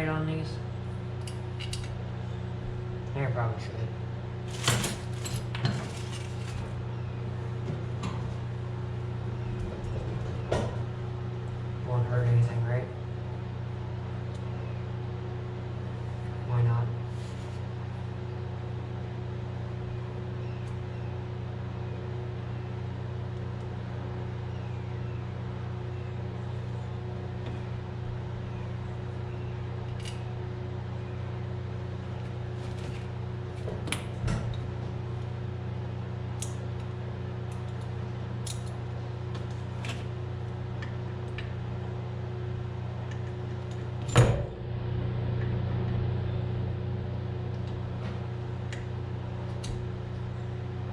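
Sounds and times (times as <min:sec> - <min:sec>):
steady low hum: 0:00.0 - 0:50.9
hand tools and metal parts clicking: 0:01.2 - 0:01.9, 0:37.5 - 0:38.8.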